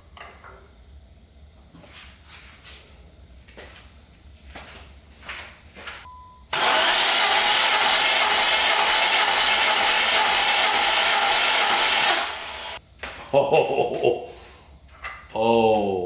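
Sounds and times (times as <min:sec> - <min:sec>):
short beep: 0:06.1 - 0:06.5
engine cranking on starter: 0:06.6 - 0:12.8.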